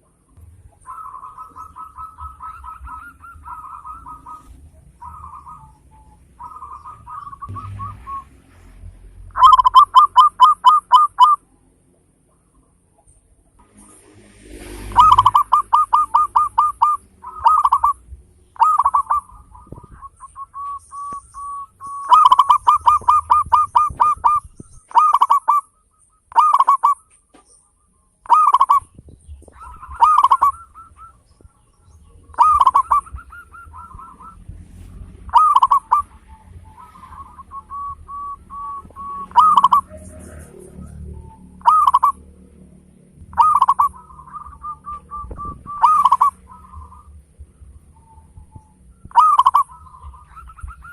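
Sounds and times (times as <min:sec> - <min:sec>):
dove cooing: 0:00.0 - 0:08.3, 0:09.2 - 0:11.4, 0:14.8 - 0:27.4, 0:28.2 - 0:42.4, 0:43.2 - 0:50.9.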